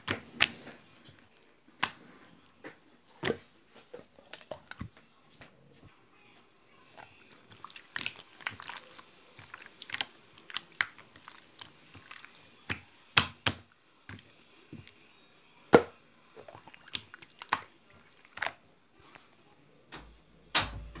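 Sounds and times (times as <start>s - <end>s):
slime squishing with clicks and pops: 7.4s - 15.0s, 15.7s - 18.6s.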